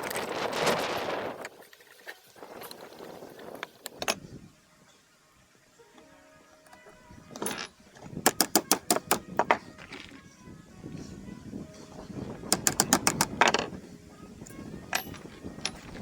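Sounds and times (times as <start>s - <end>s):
hand tools clicking on metal: 6.7s - 10.2s, 12.5s - 13.7s, 14.4s - 16.0s.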